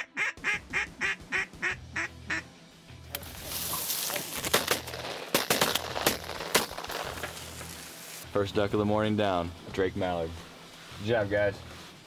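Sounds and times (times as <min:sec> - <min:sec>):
duck quacking: 0:00.0 - 0:02.5.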